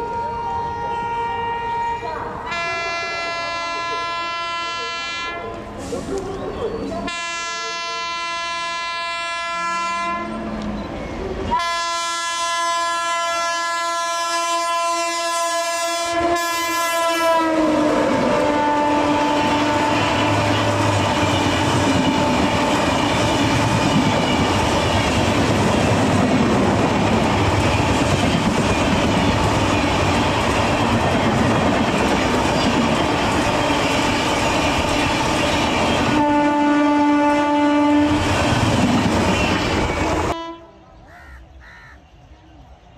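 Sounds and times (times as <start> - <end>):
train horn blasts: 0.0 - 5.6, 7.1 - 10.6, 11.5 - 23.4, 36.0 - 38.4, 40.2 - 40.9
clickety-clack of passing coaches: 2.5 - 8.1, 17.0 - 40.4.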